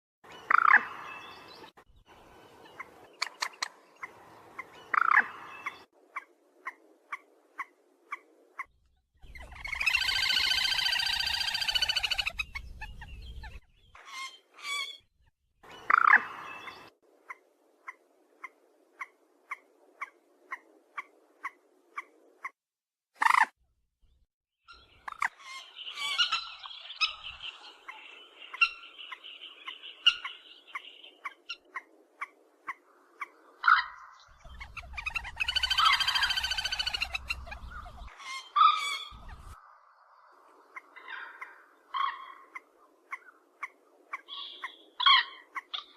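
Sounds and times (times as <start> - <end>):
bird chattering calls: 2.8 - 15.0, 24.7 - 39.6.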